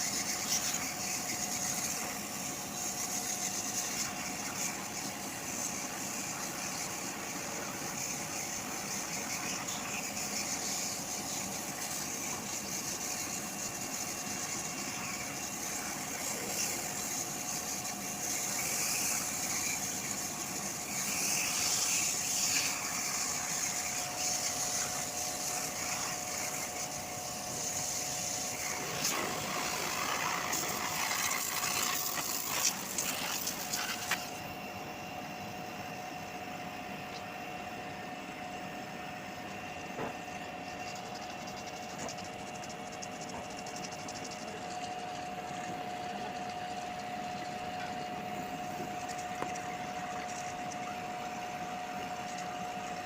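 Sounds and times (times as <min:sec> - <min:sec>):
machine running with hiss and hum: 0:00.0 - 0:53.0.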